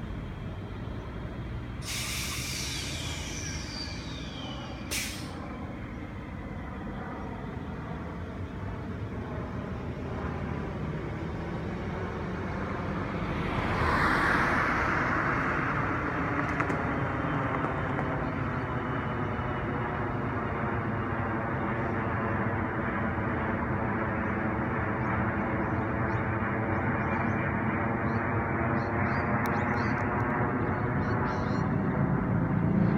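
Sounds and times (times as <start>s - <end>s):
rush of noise: 0.0s - 7.8s, 8.4s - 18.7s
vehicle engine hum: 0.0s - 32.9s.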